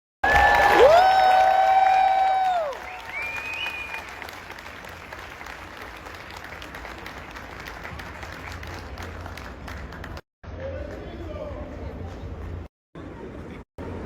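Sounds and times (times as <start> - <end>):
audience applauding: 0.2 - 10.2.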